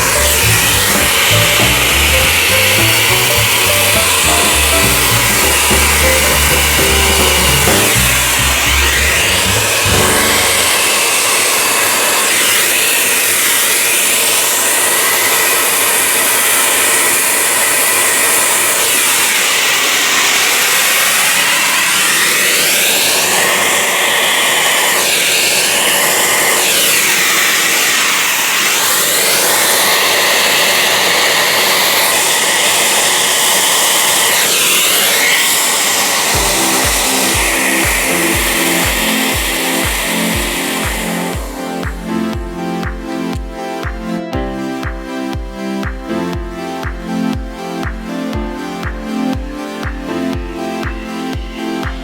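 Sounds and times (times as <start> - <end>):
rhythmic low thumping: 0.0 - 10.9, 36.4 - 52.0
electric blower motor whooshing: 0.0 - 43.8.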